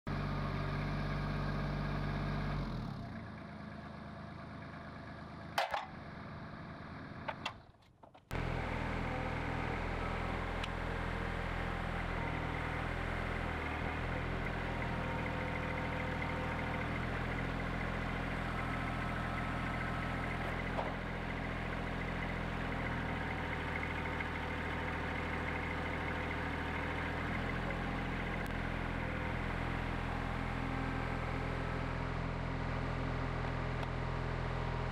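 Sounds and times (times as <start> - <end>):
sawmill engine running: 8.3 - 34.9.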